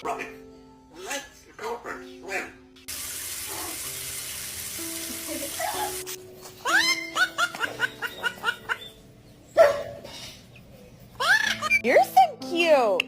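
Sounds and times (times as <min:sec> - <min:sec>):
background music: 0:00.0 - 0:13.0
running water hissing: 0:02.9 - 0:06.2.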